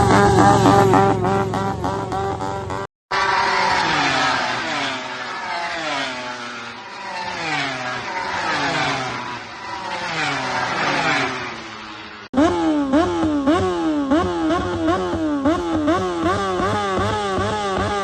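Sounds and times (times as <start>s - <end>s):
racing motorcycles downshifting: 0.0s - 18.0s.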